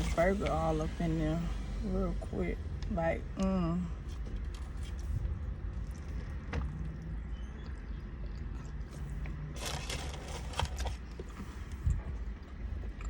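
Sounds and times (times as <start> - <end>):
steady low rumble: 0.0 - 13.0
person biting and chewing: 4.0 - 13.0
crackling rustle: 8.8 - 12.6.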